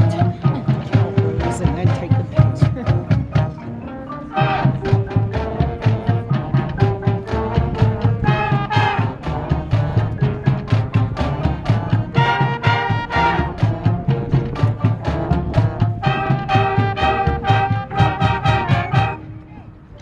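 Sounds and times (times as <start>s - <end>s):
marching drums beat: 0.0s - 3.6s, 4.3s - 19.2s
brass horns holding chords: 0.0s - 19.8s.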